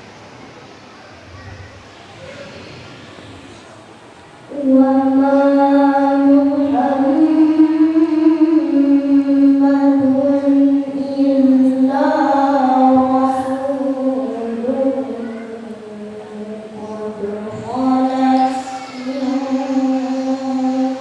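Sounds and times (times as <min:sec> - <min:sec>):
person chanting melodically: 0:04.5 - 0:21.0.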